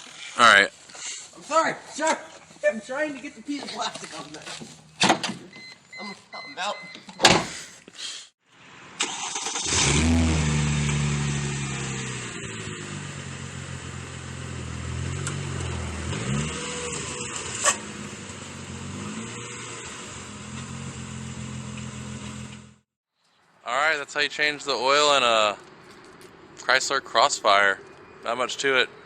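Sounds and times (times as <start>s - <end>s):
car engine starting and idling: 8.9s - 22.8s.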